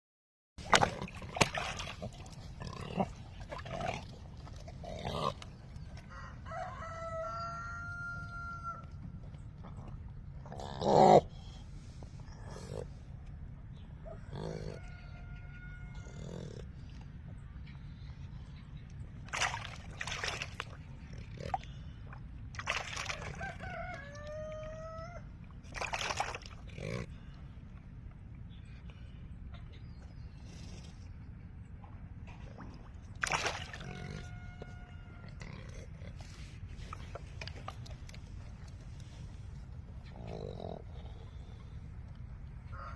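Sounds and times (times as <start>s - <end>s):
rooster crowing: 6.0s - 8.9s, 14.1s - 16.4s, 23.1s - 25.3s, 33.9s - 35.4s, 42.7s - 42.9s.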